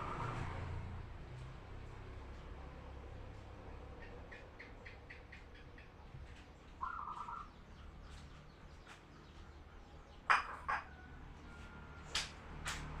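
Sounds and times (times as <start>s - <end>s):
sharp loud bird calls: 3.9s - 11.0s
dove cooing: 6.8s - 7.5s.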